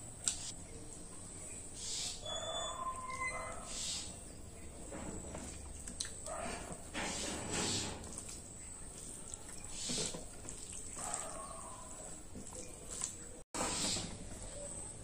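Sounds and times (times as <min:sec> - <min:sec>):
wet chewing: 0:05.3 - 0:07.0, 0:07.8 - 0:13.4.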